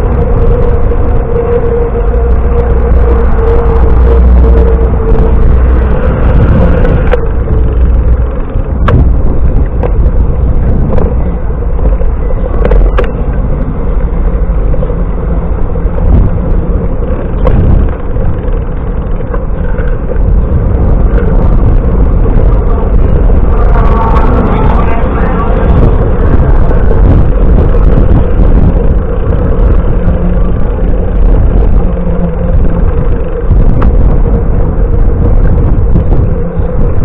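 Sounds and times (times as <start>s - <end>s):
road noise: 0.0s - 37.0s
wind buffeting microphone: 0.0s - 37.0s.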